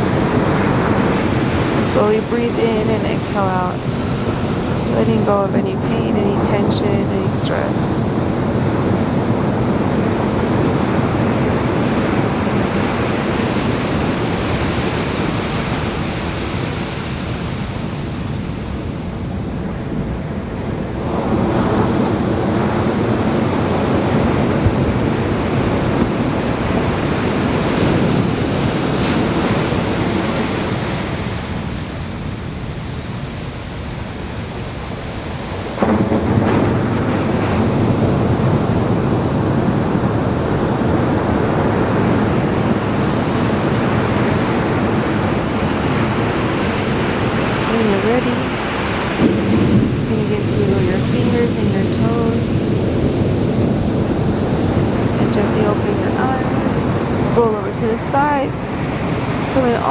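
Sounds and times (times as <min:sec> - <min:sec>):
ocean surf washing on beach: 0:00.0 - 0:59.9.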